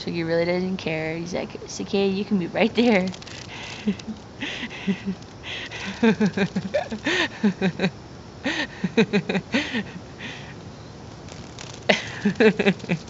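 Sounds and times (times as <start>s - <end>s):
cicada buzzing: 0.9s - 13.0s
person chuckling: 3.3s - 10.5s, 11.9s - 13.0s.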